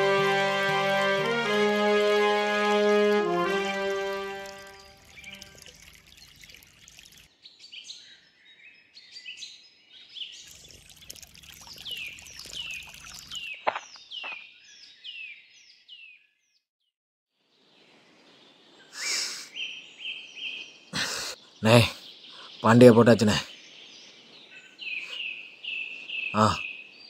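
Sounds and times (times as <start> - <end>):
outdoor background noise: 3.4 - 15.0, 17.4 - 27.0.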